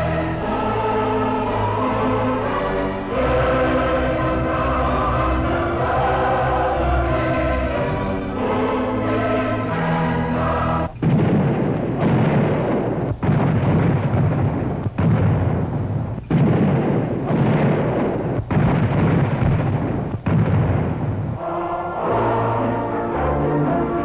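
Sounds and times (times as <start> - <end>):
artillery blasts rumbling: 10.9 - 21.4.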